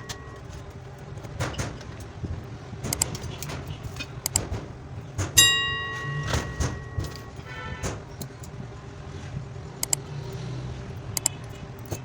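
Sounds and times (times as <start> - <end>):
tools and wires clicking on workbench: 0.0 - 8.6, 9.8 - 10.4, 11.2 - 12.0
sharp ringing metallic strike: 5.4 - 7.4.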